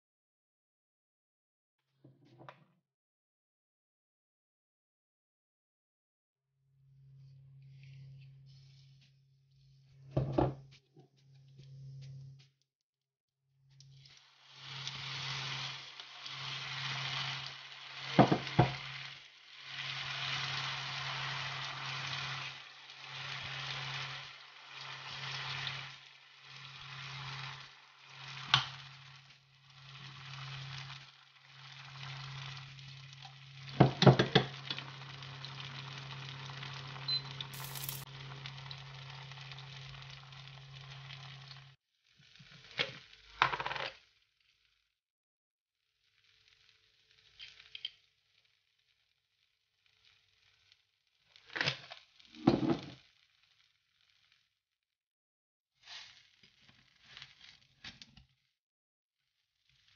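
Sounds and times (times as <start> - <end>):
batter sizzling in hot oil: 13.7 - 44.7, 46.0 - 54.6, 55.7 - 58.5, 59.2 - 59.9.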